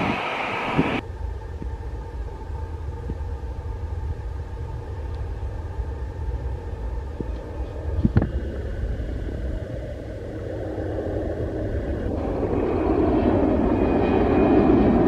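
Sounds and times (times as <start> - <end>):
faint whine: 0.0 - 15.0
jet engines roaring: 0.0 - 15.0
low engine rumble: 0.0 - 15.0.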